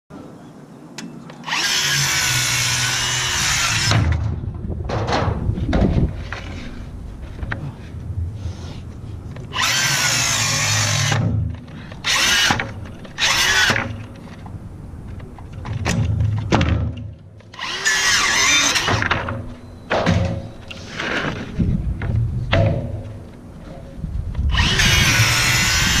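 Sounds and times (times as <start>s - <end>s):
power drill running: 1.4s - 3.9s, 9.5s - 11.2s, 17.6s - 18.9s, 24.5s - 26.0s.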